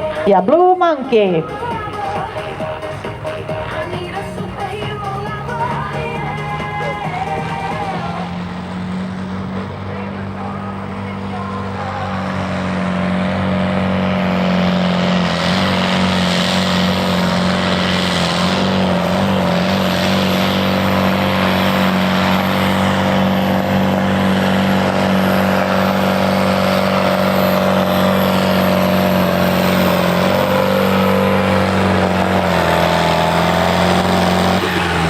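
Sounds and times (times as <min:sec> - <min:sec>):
tractor engine at high revs: 0:00.0 - 0:35.0.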